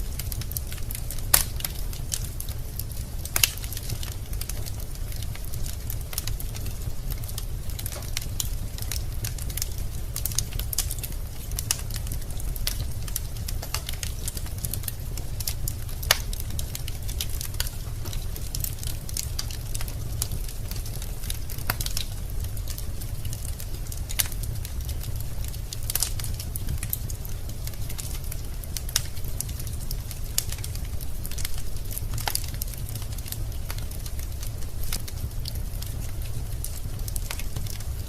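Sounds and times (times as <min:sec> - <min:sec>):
fire crackling and popping: 0:00.0 - 0:38.0
low fire rumble: 0:00.0 - 0:38.0.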